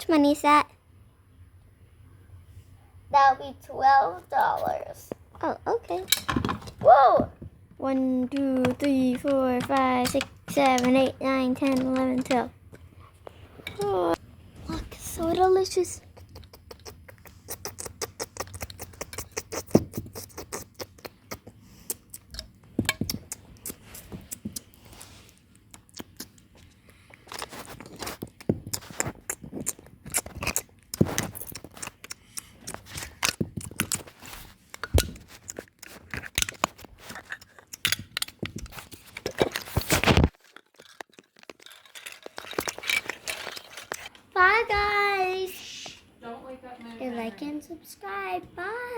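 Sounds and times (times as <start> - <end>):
toy pieces clicking and tapping: 7.9 - 12.5.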